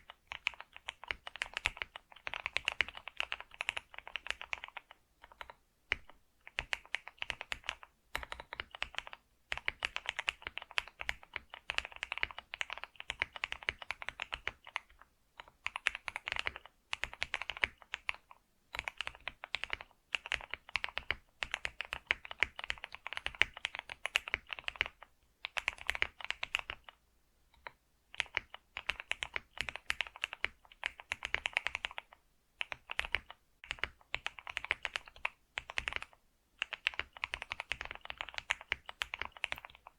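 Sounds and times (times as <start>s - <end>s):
typing on computer keyboard: 0.0s - 39.9s.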